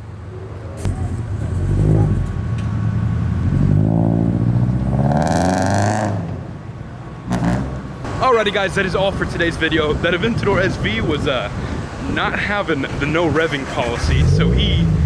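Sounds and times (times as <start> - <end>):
car engine revving past: 0.8 - 6.5.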